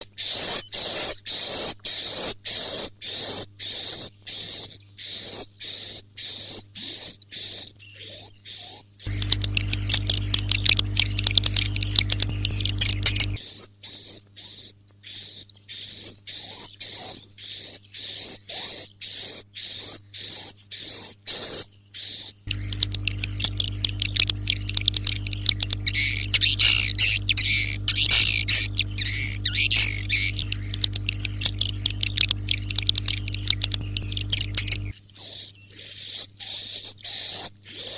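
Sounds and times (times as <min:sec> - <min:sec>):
low steady hum: 0:09.1 - 0:13.4, 0:22.5 - 0:35.0
swiftlets chirping: 0:09.1 - 0:13.4, 0:22.5 - 0:35.0.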